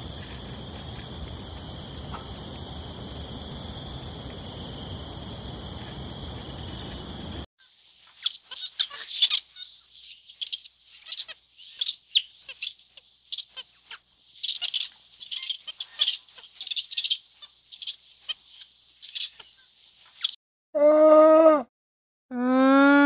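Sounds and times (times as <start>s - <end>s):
animals chirping and squeaking: 8.1s - 20.4s.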